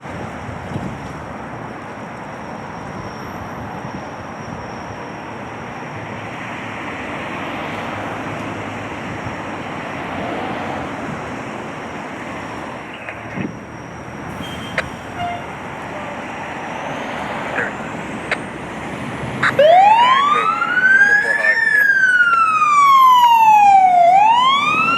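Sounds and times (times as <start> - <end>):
wind buffeting microphone: 0.0 - 2.0, 8.9 - 12.1
street traffic: 0.0 - 24.9.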